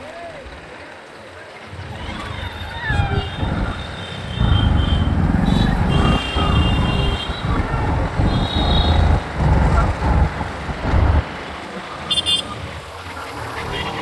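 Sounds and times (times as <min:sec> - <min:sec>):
road and traffic noise: 0:01.3 - 0:14.0
wind buffeting on microphone: 0:02.4 - 0:11.6.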